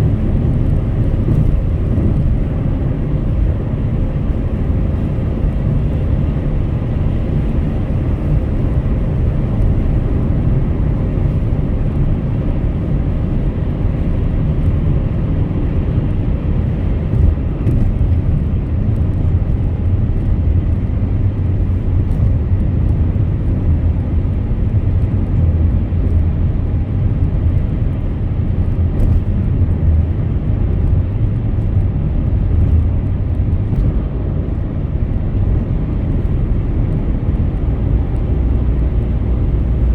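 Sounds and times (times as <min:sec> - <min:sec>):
car driving at highway speed: 0:00.0 - 0:39.9.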